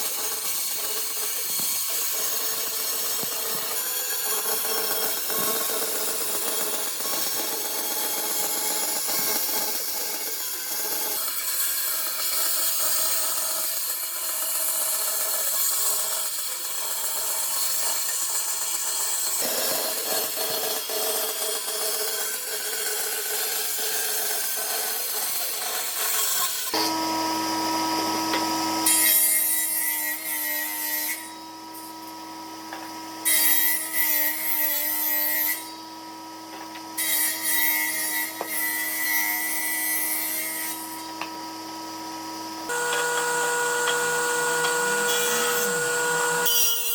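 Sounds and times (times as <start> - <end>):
wood being cut rasping: 15.7 - 32.2, 36.6 - 46.9
power tool motor hum: 26.6 - 29.8, 31.4 - 46.9.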